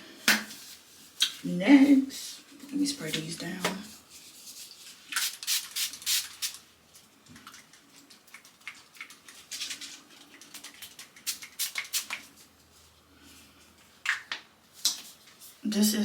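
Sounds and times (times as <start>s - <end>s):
spray bottle hissing bursts: 5.1s - 6.6s.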